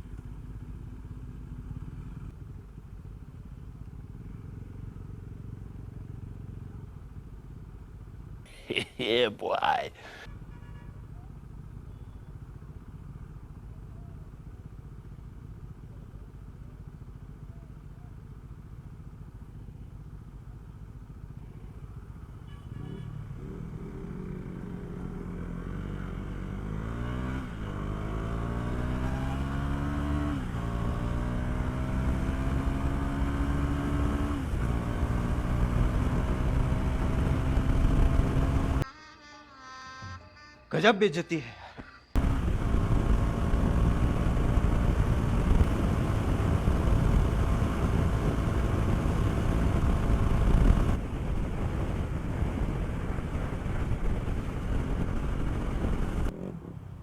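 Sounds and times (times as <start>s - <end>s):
motorcycle engine accelerating: 11.2s - 38.8s, 42.2s - 57.0s.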